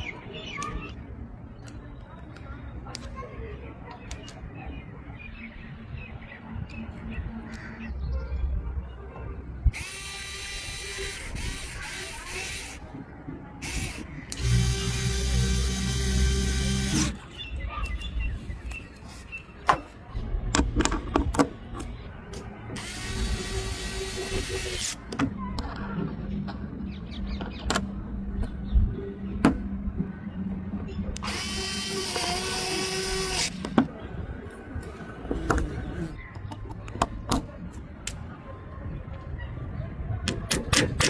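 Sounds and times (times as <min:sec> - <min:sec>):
small motor whirring: 0:09.7 - 0:12.8, 0:13.6 - 0:17.2, 0:22.8 - 0:25.0, 0:31.2 - 0:33.6.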